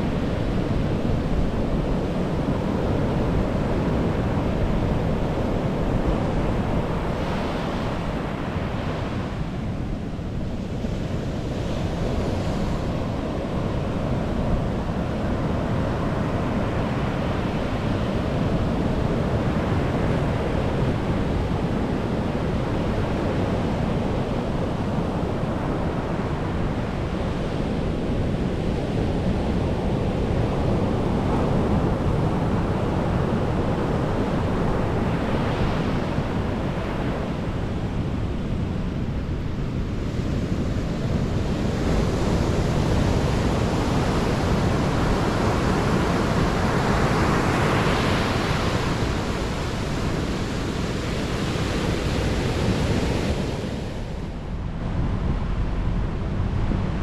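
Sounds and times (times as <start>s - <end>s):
low rushing noise: 47.4s - 57.0s.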